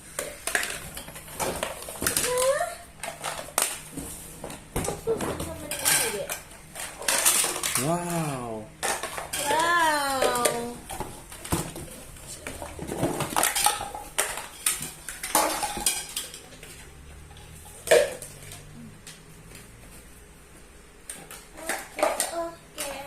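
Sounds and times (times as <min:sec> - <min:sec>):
plastic toy pieces clattering: 0:00.2 - 0:03.9, 0:04.8 - 0:08.2, 0:08.8 - 0:18.7.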